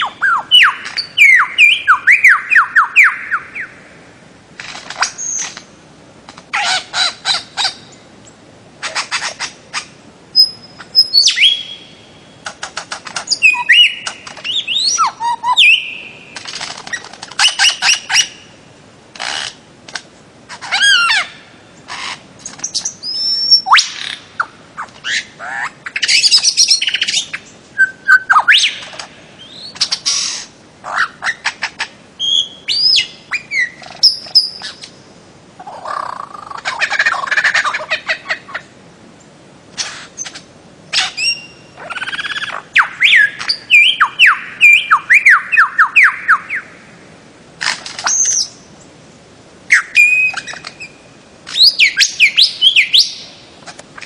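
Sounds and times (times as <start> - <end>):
bird whistling and squawking: 0.0 - 3.8, 8.8 - 12.0, 13.2 - 16.2, 16.8 - 18.4, 20.6 - 22.2, 22.8 - 34.9, 39.8 - 46.7, 49.7 - 53.3.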